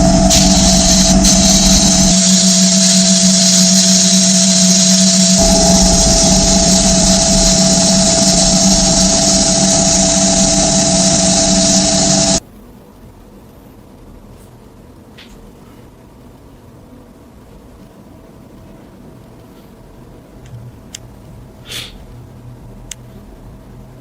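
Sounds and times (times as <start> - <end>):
electric power tool grinding: 0.0 - 12.4.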